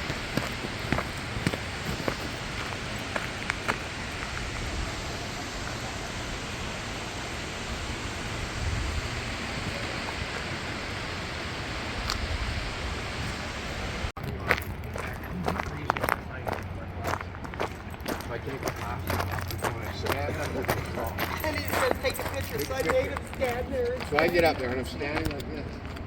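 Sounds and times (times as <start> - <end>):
waterfall rushing: 0.0 - 14.1.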